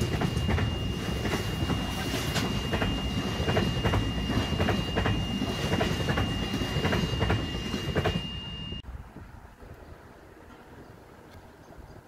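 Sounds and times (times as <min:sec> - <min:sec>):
wheels clacking over rail joints: 0:00.0 - 0:08.2
thin high whine: 0:00.0 - 0:08.8
freight train rumble: 0:00.0 - 0:12.0.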